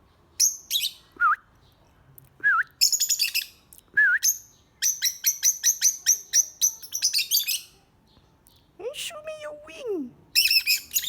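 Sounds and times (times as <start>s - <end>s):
pet birds whistling: 0.4s - 1.4s, 2.8s - 7.7s, 10.3s - 11.0s
high bird chirps: 2.8s - 3.6s, 4.2s - 7.8s, 10.4s - 11.0s.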